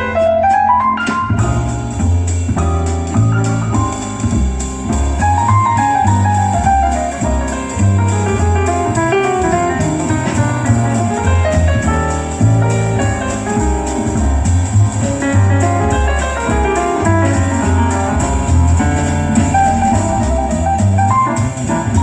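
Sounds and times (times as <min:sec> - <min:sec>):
instrumental music over loudspeakers: 0:00.0 - 0:07.4.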